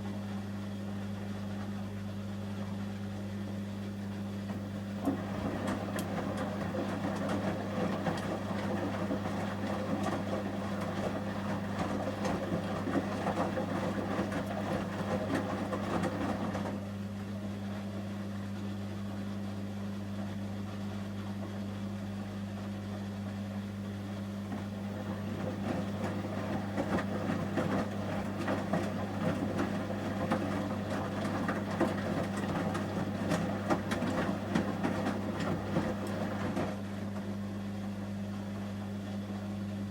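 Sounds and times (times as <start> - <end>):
washing machine hum: 0.0 - 39.9
washing machine drum tumbling: 4.4 - 16.9, 24.4 - 37.6.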